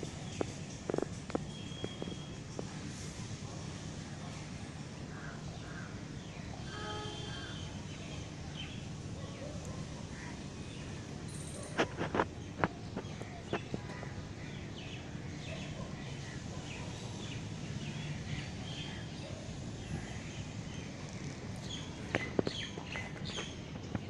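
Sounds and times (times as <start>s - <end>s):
small birds chirping: 0.0s - 3.1s, 7.2s - 24.0s.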